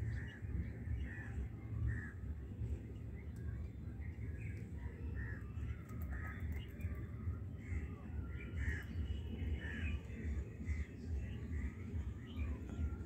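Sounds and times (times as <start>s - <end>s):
steady low rumble: 0.0s - 13.0s
birds calling: 4.4s - 13.0s.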